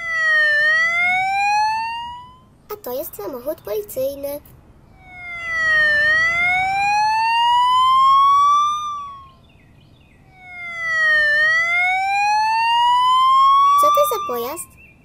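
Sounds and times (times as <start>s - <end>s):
police siren wailing: 0.0s - 2.6s, 4.9s - 9.4s, 10.2s - 14.7s.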